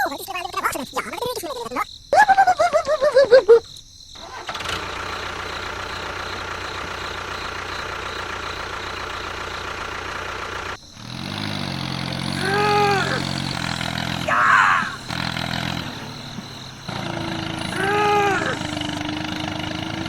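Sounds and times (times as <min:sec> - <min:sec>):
engine running: 0:04.2 - 0:20.0.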